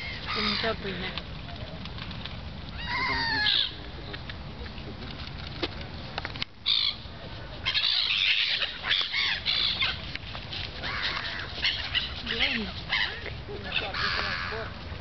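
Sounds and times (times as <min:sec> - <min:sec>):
seagulls calling: 0:00.0 - 0:01.2, 0:02.7 - 0:04.1, 0:06.6 - 0:14.8.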